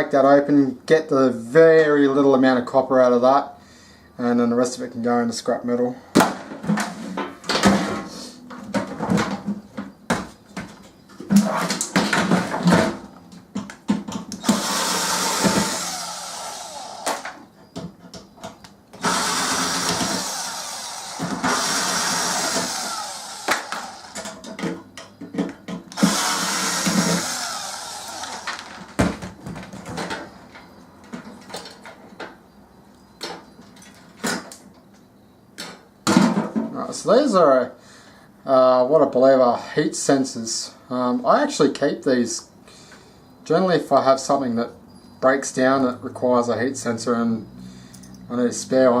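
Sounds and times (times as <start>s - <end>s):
power tool running: 14.4s - 17.4s, 19.0s - 24.4s, 26.0s - 28.9s
metal parts knocking and clanking: 28.3s - 32.4s.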